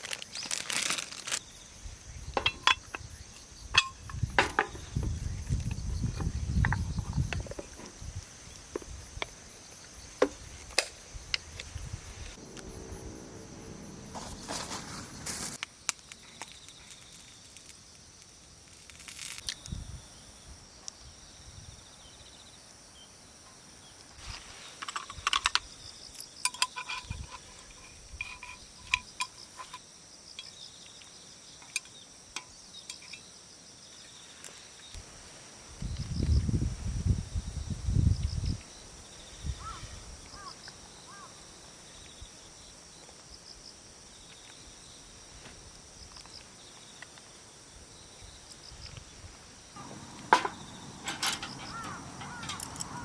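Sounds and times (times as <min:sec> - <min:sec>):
insects trilling: 0:00.0 - 0:53.0
clicks and knocks of handling: 0:49.8 - 0:53.0.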